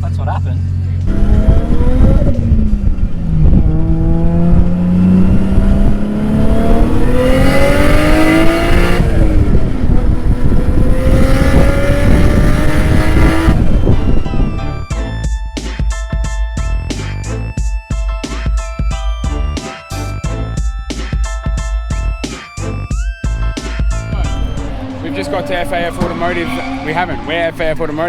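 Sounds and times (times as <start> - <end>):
car engine at high revs: 0.0 - 14.9, 24.3 - 28.0.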